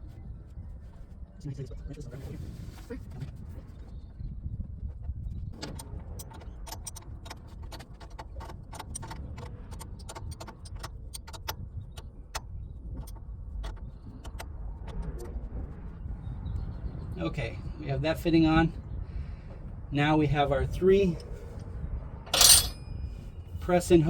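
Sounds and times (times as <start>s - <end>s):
hand tools clicking and tapping: 22.3s - 22.9s.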